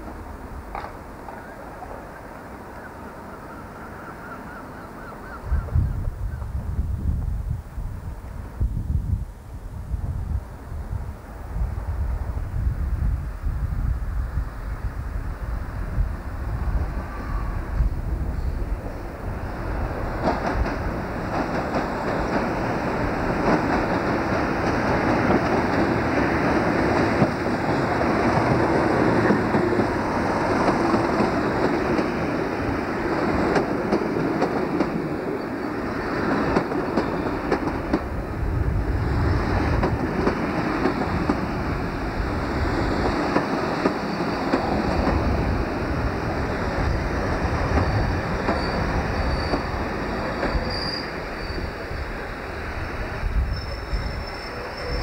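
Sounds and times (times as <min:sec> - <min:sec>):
diesel locomotive engine: 0:09.8 - 0:55.0
high brake squeal: 0:17.1 - 0:18.6, 0:44.0 - 0:44.5, 0:47.9 - 0:52.1, 0:53.4 - 0:55.0
train wheels clattering: 0:19.6 - 0:38.2, 0:39.2 - 0:41.8, 0:42.4 - 0:51.8.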